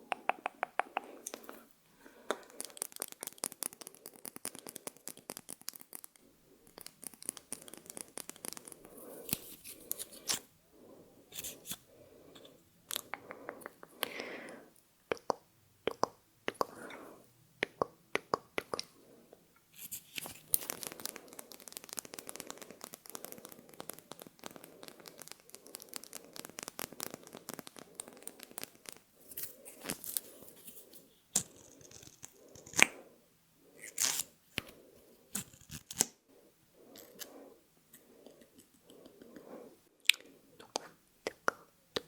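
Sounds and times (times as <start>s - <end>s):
sharp taps: 0.0s - 1.1s
packaging crinkling: 19.8s - 30.8s.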